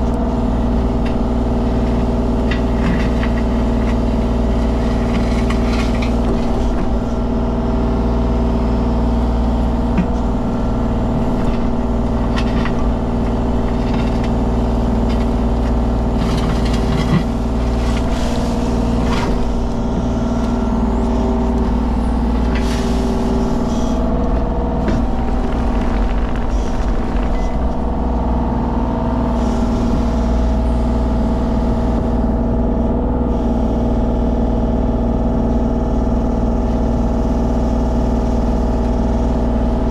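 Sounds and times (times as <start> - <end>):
diesel engine running: 0.0 - 39.9
knocks and scrapes: 1.8 - 7.3, 9.9 - 28.2.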